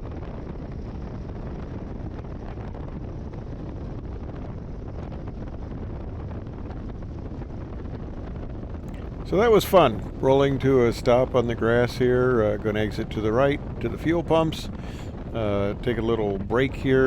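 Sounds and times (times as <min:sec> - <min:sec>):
wind buffeting microphone: 0:00.0 - 0:17.0
biplane engine running: 0:08.9 - 0:17.0.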